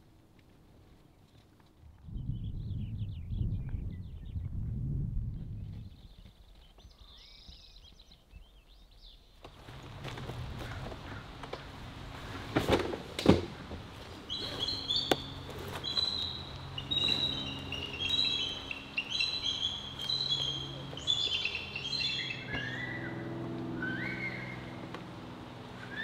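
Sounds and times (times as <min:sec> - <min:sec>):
steady low hum: 0:01.8 - 0:06.4, 0:09.5 - 0:26.0
birds chirping: 0:14.0 - 0:26.0.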